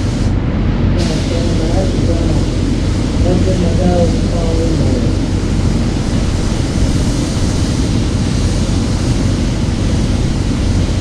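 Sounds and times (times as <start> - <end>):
paint spray gun hissing: 0.0 - 0.4, 1.0 - 11.0
low rumble: 0.0 - 11.0.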